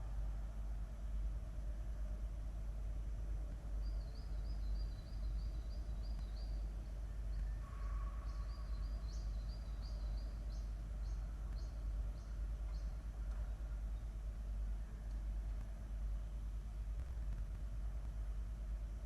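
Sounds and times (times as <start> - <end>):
low background rumble: 0.0 - 19.0
bird chirping: 3.8 - 14.1.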